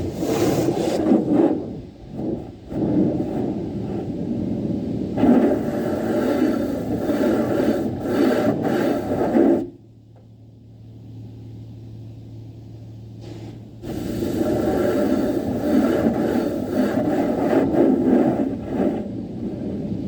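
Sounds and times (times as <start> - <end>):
car wash rushing noise: 0.0 - 9.8, 13.2 - 20.0
steady low hum: 0.0 - 20.0.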